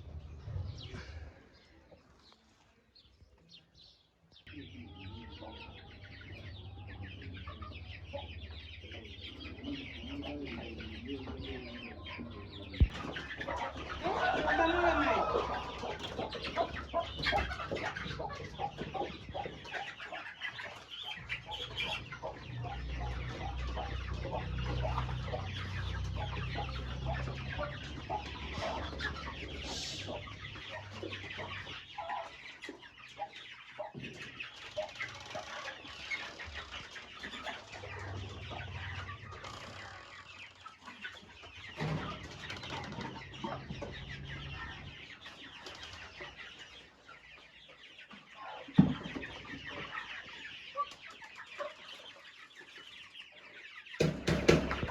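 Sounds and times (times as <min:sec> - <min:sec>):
chicks peeping and clucking: 0:00.0 - 0:54.9.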